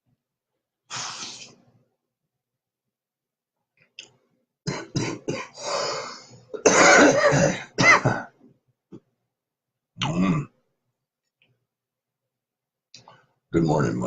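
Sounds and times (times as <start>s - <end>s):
man coughing: 4.7s - 5.6s, 6.6s - 8.4s.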